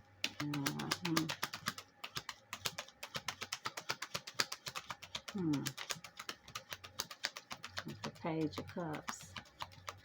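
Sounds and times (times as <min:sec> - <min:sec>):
cards being shuffled: 0:00.2 - 0:10.0.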